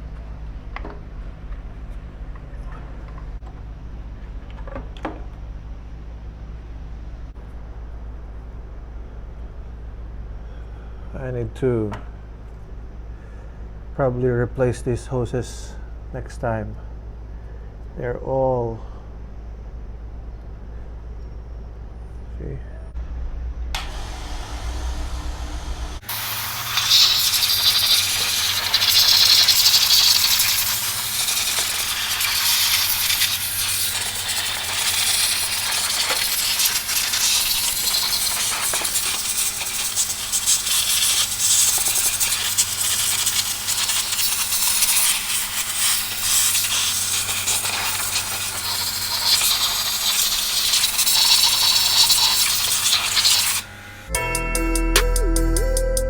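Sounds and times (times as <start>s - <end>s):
water spray hissing on engine: 23.9s - 53.7s.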